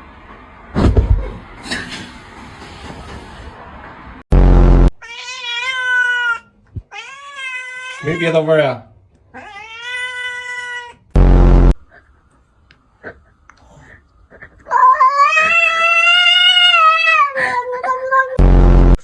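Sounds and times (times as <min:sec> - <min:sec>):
loud buzzy blast: 0:04.3 - 0:05.0, 0:11.2 - 0:11.8, 0:18.4 - 0:19.0
cat meowing: 0:05.0 - 0:08.4, 0:09.3 - 0:11.0, 0:14.7 - 0:18.4
cat yowling: 0:05.0 - 0:08.4, 0:09.3 - 0:11.0, 0:14.7 - 0:18.4.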